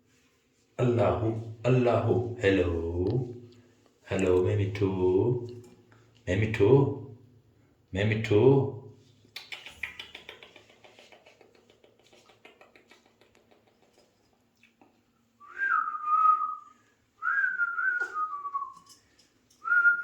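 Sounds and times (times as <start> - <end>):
rapid faint clicking: 9.4 - 14.9.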